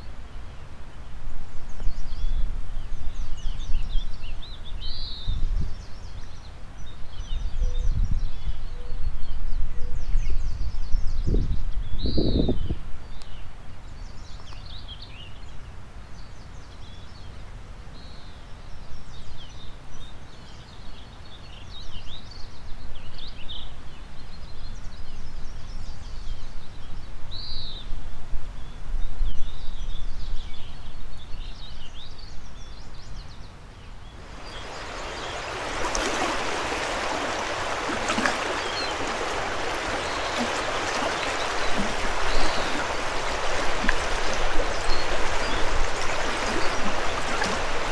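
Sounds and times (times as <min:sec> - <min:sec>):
wind on microphone: 0:07.3 - 0:12.9, 0:34.2 - 0:47.9
fast river rushing: 0:34.2 - 0:47.9
songbirds chirping and trilling: 0:34.2 - 0:47.9.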